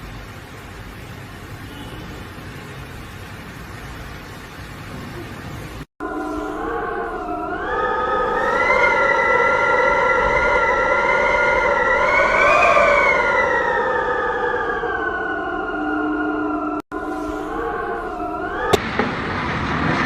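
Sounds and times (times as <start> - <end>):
siren wailing: 6.0 - 19.0.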